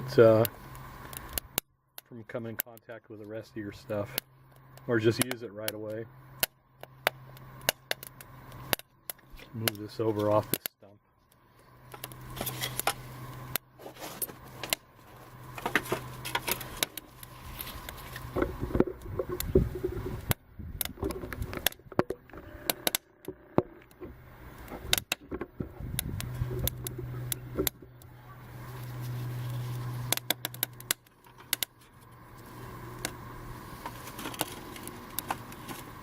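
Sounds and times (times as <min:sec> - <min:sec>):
low steady hum: 0:00.0 - 0:36.0
tinder crackling and popping: 0:00.3 - 0:02.8, 0:03.9 - 0:36.0.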